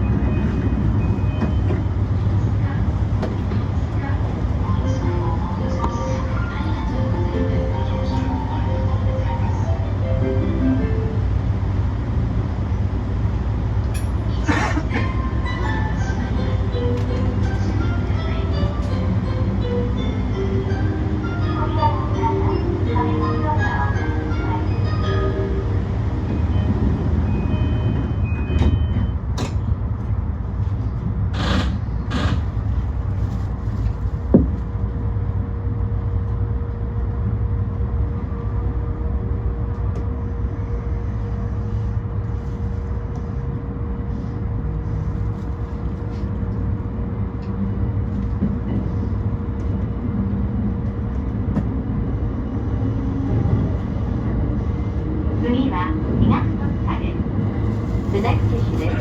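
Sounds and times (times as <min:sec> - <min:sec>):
train running rumble: 0:00.0 - 0:59.0.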